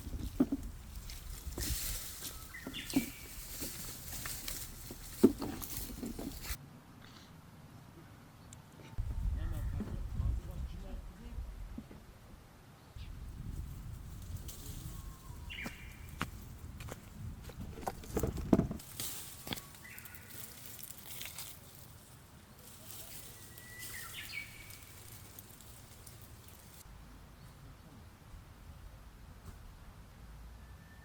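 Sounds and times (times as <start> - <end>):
leaves and branches rustling: 0.0 - 6.6, 13.0 - 27.8
low rumble: 9.0 - 11.8.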